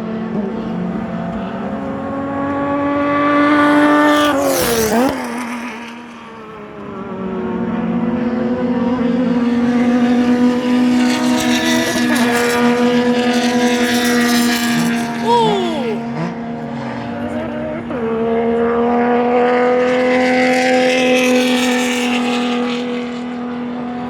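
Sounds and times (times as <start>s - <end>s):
race cars passing at speed: 16.5s - 24.0s.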